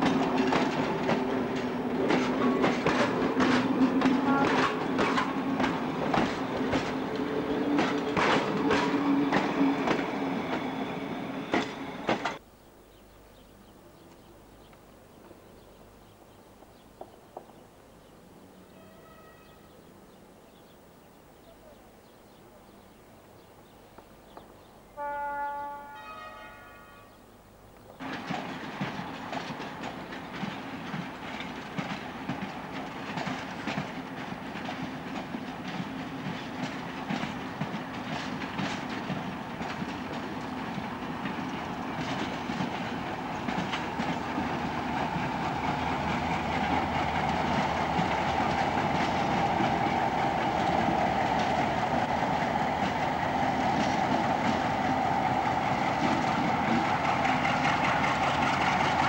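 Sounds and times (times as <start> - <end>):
train wheels clattering over joints: 0.0 - 12.4, 27.9 - 59.0
train horn: 3.9 - 5.7, 18.6 - 19.8, 25.0 - 27.3.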